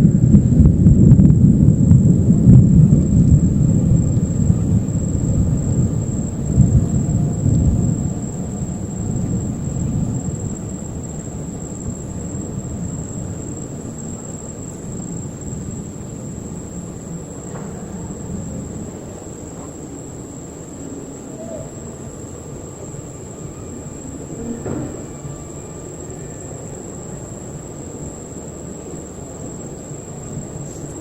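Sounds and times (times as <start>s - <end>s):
rolling thunder: 0.0s - 31.0s.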